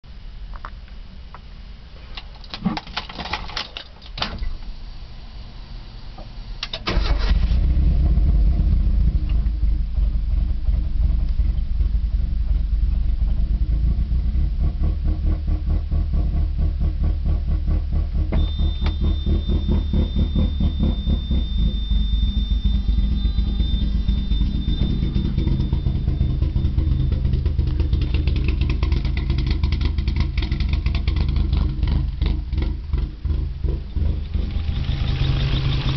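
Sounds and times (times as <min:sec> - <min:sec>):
car engine starting and idling: 0:00.1 - 0:35.9
thin high whine: 0:18.3 - 0:29.3.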